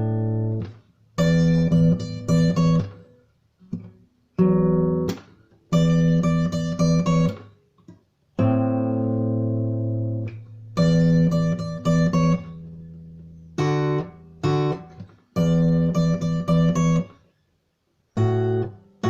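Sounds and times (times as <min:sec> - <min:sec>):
acoustic guitar strumming chords: 0:08.4 - 0:17.1.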